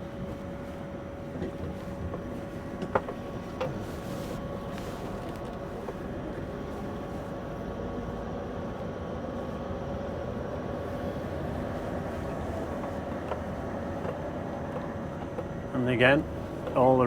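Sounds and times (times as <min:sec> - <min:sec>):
road noise: 0:00.0 - 0:17.0
truck diesel engine running: 0:09.4 - 0:17.0.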